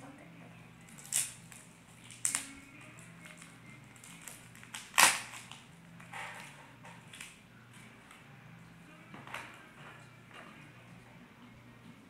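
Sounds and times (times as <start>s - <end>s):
wrapper crinkling: 0.8s - 5.7s.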